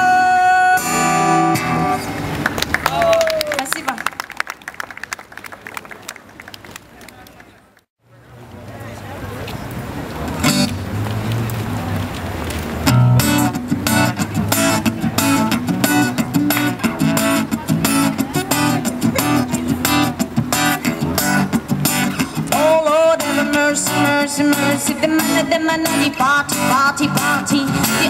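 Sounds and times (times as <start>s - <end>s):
guitar strumming: 0.0s - 2.4s, 10.4s - 11.2s, 12.8s - 28.0s
person singing: 22.3s - 28.0s.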